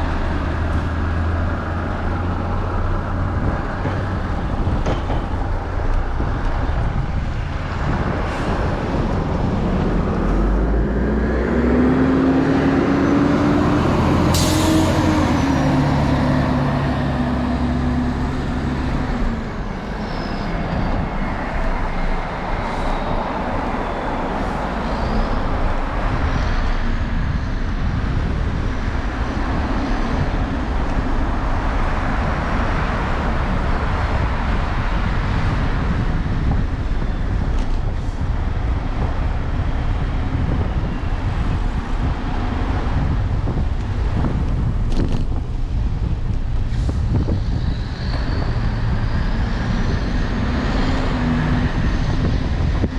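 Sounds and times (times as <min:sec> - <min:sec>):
heavy vehicle engine humming: 0:00.0 - 0:52.9
traffic rushing past: 0:00.0 - 0:52.9
faint high squeals: 0:19.5 - 0:26.7.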